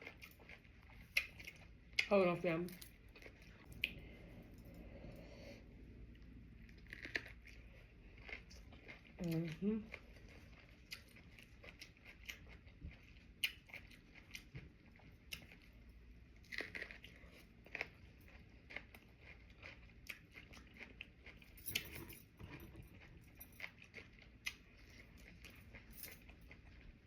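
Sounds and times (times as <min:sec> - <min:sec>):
person chewing: 0:00.0 - 0:02.1, 0:02.9 - 0:27.0.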